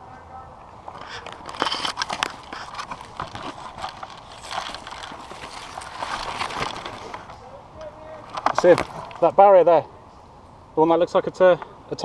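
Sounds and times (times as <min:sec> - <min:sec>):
gear rattling against camera: 0:00.8 - 0:09.4.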